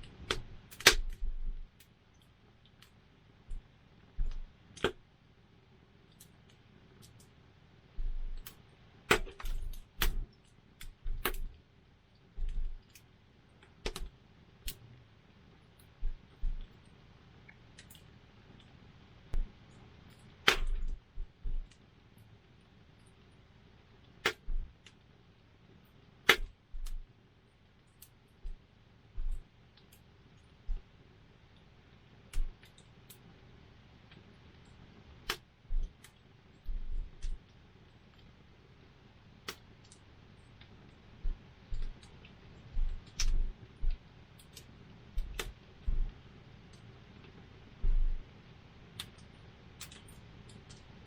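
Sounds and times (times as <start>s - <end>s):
sharp pops and snaps: 0.0s - 5.1s, 8.0s - 11.6s, 12.2s - 14.9s, 15.8s - 21.9s, 24.0s - 25.1s, 26.2s - 27.1s, 31.5s - 33.3s, 34.1s - 38.4s, 39.4s - 48.3s, 48.9s - 51.0s
wood fire crackling: 0.0s - 5.1s, 5.7s - 51.0s
short low thumps: 20.6s - 21.7s, 36.7s - 37.4s, 42.8s - 44.0s, 45.2s - 46.1s, 47.8s - 48.2s.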